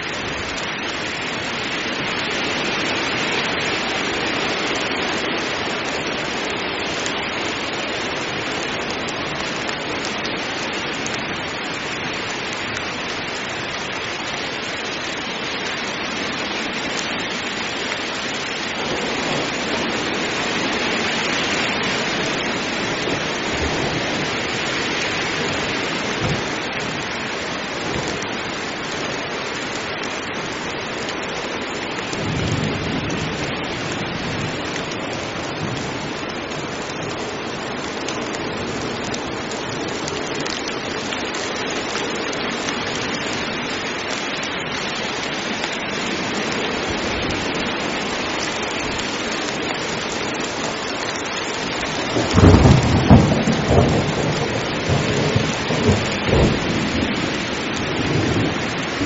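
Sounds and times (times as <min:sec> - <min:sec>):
heavy rain: 0:00.0 - 0:59.0
distant thunder: 0:52.2 - 0:59.0.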